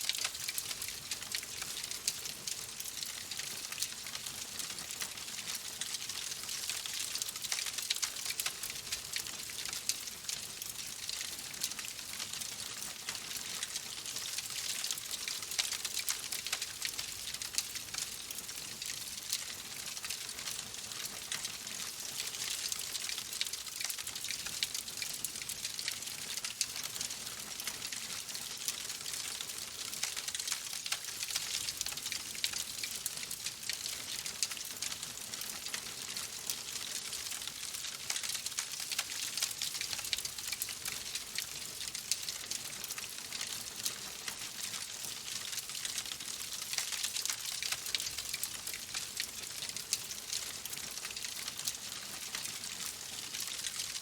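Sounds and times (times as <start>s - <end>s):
fire crackling and popping: 19.4s - 53.4s.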